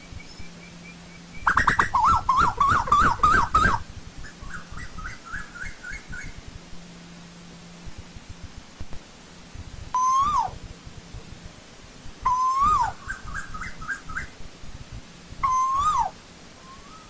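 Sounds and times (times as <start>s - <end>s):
bird calling in whistled notes: 0.0s - 6.4s, 10.0s - 10.6s, 12.3s - 14.3s, 15.4s - 17.0s.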